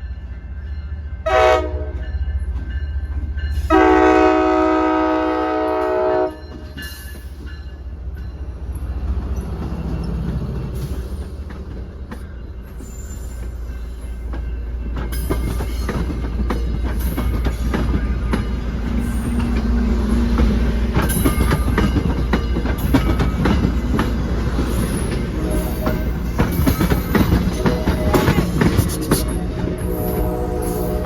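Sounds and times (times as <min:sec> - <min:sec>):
train rumbling past: 0:00.0 - 0:31.0
locomotive air horn: 0:01.3 - 0:02.0, 0:03.7 - 0:06.4, 0:27.6 - 0:31.0
wheels clicking over rail joints: 0:13.3 - 0:29.9.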